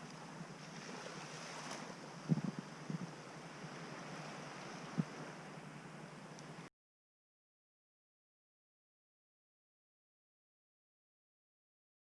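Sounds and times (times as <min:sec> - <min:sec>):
faint outdoor hiss: 0:00.0 - 0:06.7
soft low thumps: 0:02.2 - 0:03.1.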